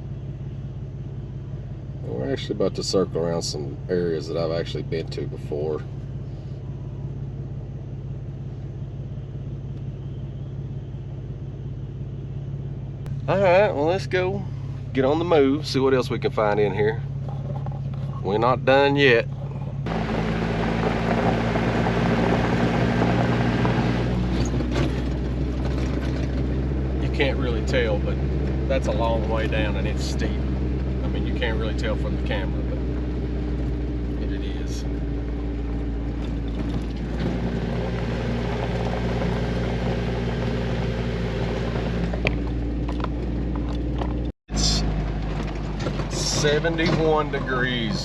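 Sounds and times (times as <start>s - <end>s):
car engine drone: 0.0s - 48.0s
tyre and road noise: 14.2s - 48.0s.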